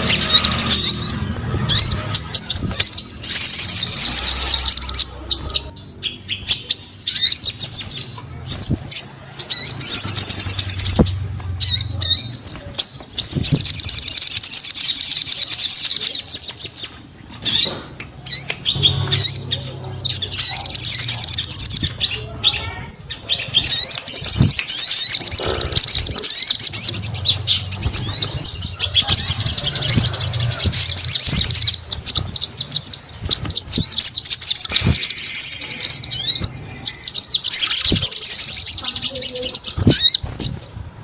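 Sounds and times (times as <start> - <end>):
bird trilling: 0.0 - 40.9.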